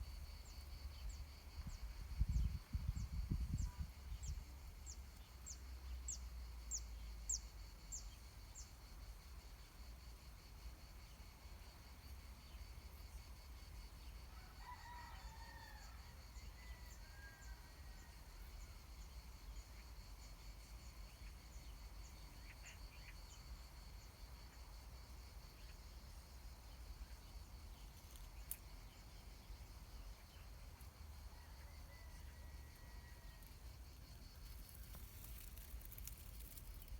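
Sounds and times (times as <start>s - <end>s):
distant rooster crowing: 14.3s - 18.2s, 31.2s - 33.5s.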